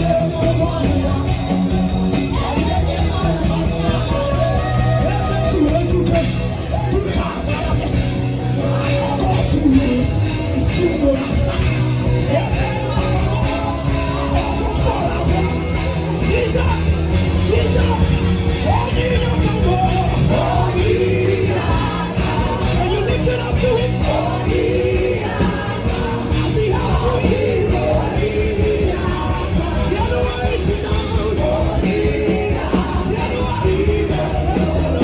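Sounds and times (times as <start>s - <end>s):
bass line: 0.0s - 35.0s
drum beat: 10.8s - 35.0s.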